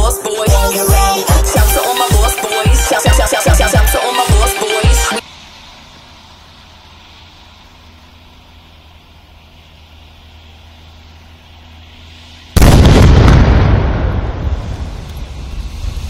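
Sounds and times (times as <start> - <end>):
rumble: 5.2 - 16.0
firecracker blast: 12.4 - 16.0.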